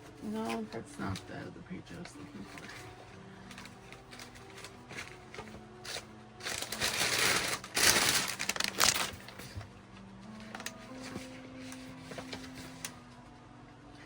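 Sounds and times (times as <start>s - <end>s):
soft background music: 0.0s - 14.0s
paper rustling and crinkling: 2.0s - 13.2s.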